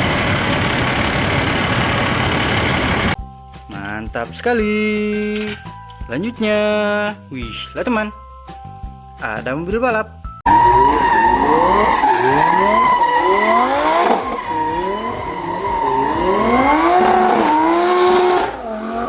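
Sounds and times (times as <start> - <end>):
racing car engine revving: 10.5 - 19.0.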